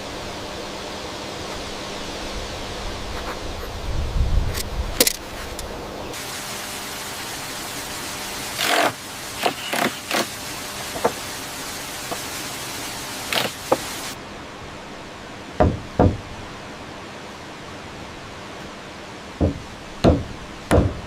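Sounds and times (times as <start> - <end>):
steady rushing hiss: 0.0 - 21.0
knocks and taps on wood: 19.4 - 21.0.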